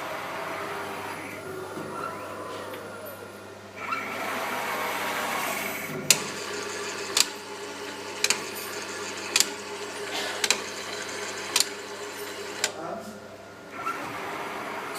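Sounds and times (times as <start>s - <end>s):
machine whirring: 0.0s - 14.9s
steady machine hum: 0.0s - 14.9s
sharp machine clicks: 6.1s - 12.8s.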